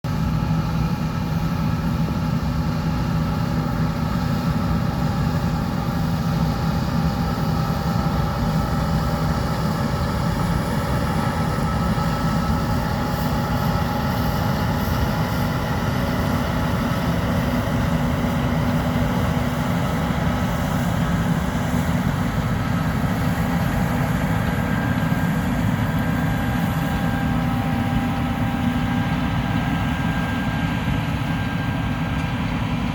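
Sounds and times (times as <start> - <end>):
combine harvester engine drone: 0.0 - 32.9
faint steady whining tones: 0.1 - 32.9.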